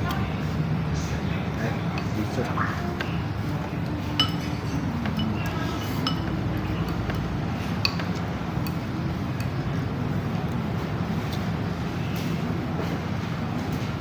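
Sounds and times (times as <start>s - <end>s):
dishes and cutlery clinking: 3.8s - 8.8s.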